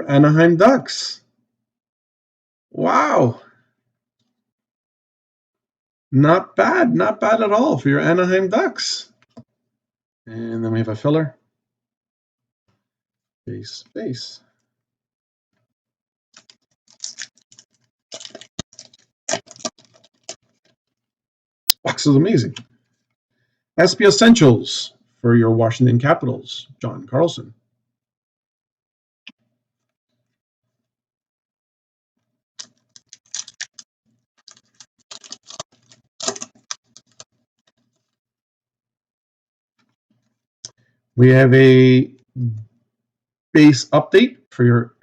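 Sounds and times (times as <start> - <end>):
cards being flipped through: 32.6 - 33.8, 34.4 - 37.2.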